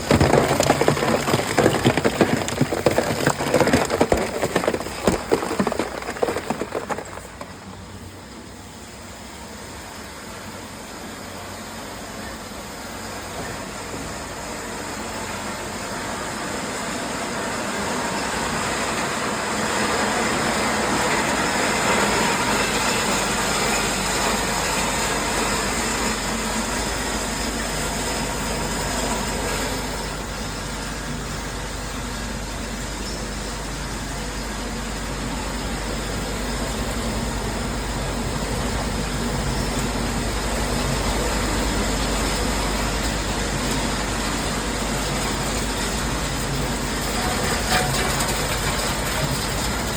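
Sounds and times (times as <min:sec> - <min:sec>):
recycling machinery din: 0:20.1 - 0:49.9.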